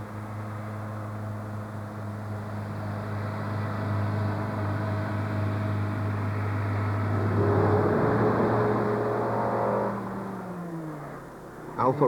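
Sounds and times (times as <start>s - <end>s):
higher engine note: 0.0s - 12.0s
car engine labouring: 4.2s - 12.0s.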